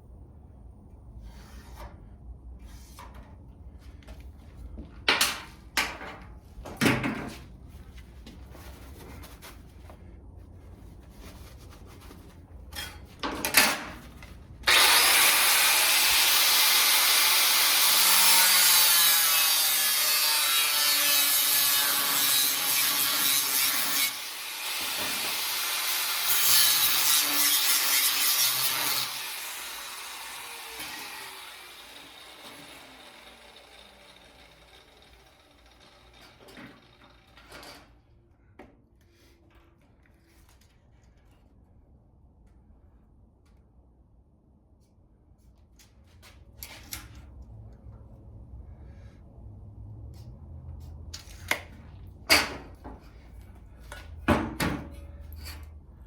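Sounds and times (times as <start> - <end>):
power tool cutting sheet metal: 14.6 - 37.8.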